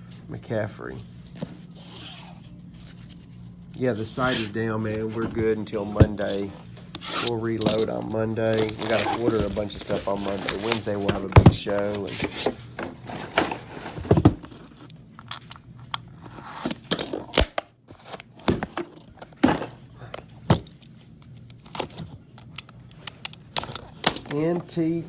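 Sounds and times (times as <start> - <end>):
wrappers crinkling and tearing: 7.1 - 11.1.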